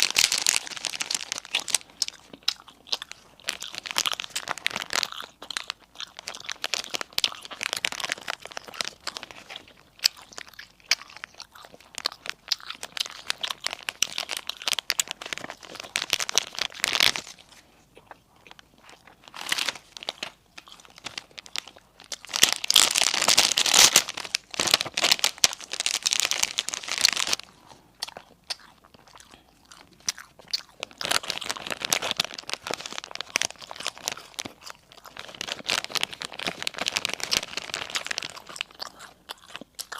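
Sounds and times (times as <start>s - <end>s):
crunching and chewing crispy food: 0.0s - 39.9s.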